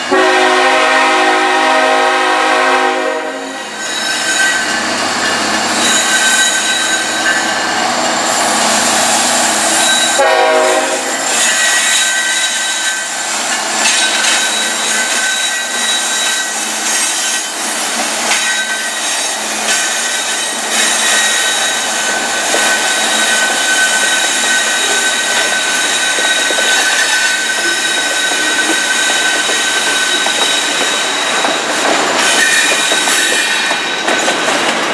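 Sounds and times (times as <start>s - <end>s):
train wheels squealing: 3.4s - 34.7s
wheels clattering on rail joints: 11.3s - 34.9s.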